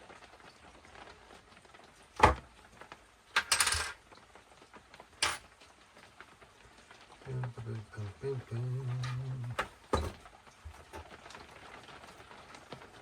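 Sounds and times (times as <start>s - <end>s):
metal parts clinking on workbench: 3.4s - 4.0s, 5.2s - 5.4s.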